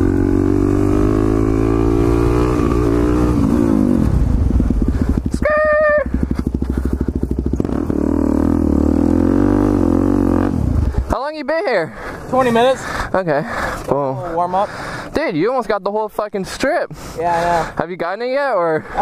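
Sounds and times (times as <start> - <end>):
motorcycle engine revving: 0.0 - 11.1.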